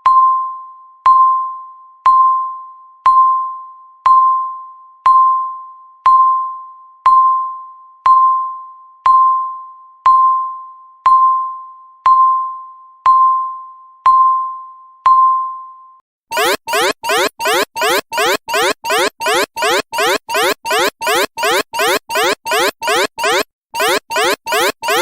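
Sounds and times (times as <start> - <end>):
electronic alarm sweeps: 16.3 - 25.0
timer electronic dings: 16.3 - 25.0.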